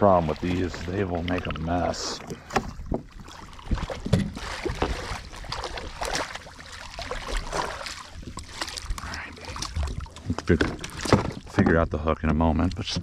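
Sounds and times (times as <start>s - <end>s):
splashing: 0.0s - 11.7s
fish knocking against kayak hull: 3.7s - 5.0s.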